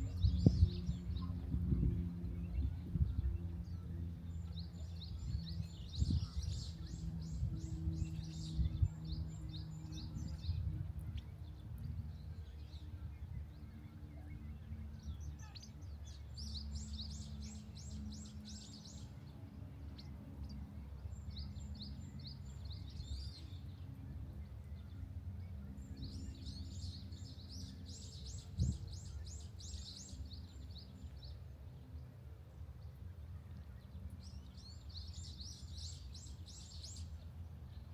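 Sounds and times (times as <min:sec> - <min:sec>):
songbird twittering: 0:00.0 - 0:11.2
steady low rumble: 0:00.0 - 0:15.3.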